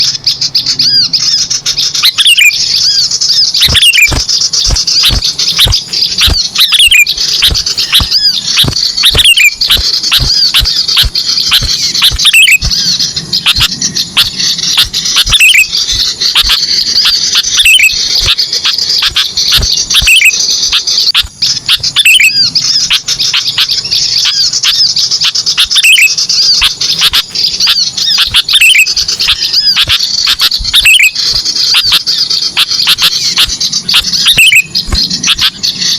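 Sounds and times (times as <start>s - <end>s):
downward-sweeping bird calls: 0.0s - 35.9s
sharp bird clicks: 0.0s - 35.9s
songbirds chirping: 0.0s - 35.9s.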